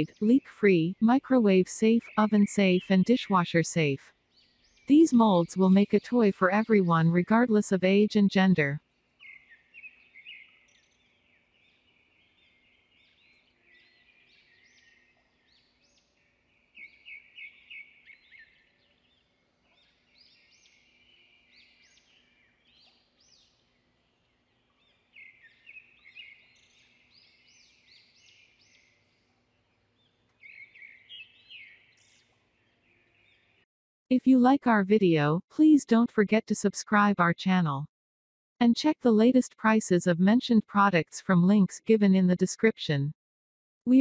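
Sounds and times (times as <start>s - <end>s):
faint chirping of small birds: 0.0s - 33.7s.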